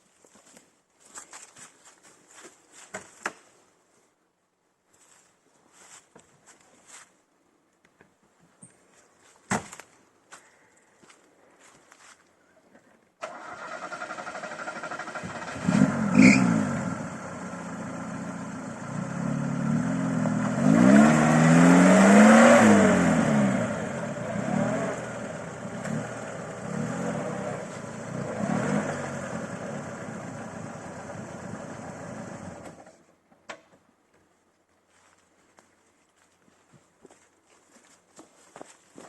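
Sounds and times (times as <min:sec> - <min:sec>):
car engine revving hard: 0:13.8 - 0:32.6.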